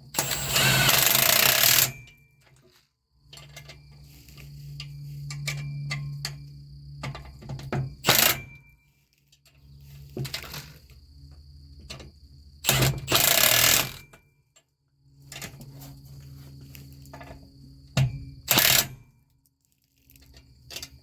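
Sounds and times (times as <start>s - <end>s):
power tool bursts: 0.1s - 2.1s, 8.0s - 8.5s, 12.6s - 14.0s, 18.5s - 19.0s.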